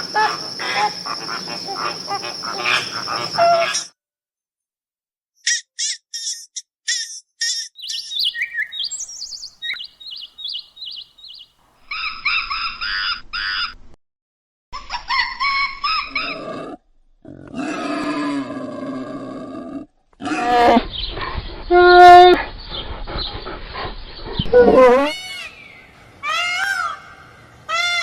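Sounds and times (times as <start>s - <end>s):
multi-tone animal calls: 0.0s - 3.9s
repeated falling animal calls: 0.0s - 3.9s
rapid high chirps: 5.5s - 11.5s.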